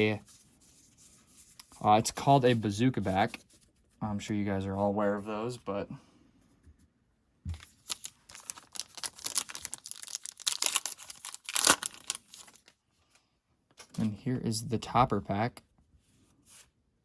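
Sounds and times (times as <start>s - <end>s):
wrapper crinkling and tearing: 7.6s - 12.8s.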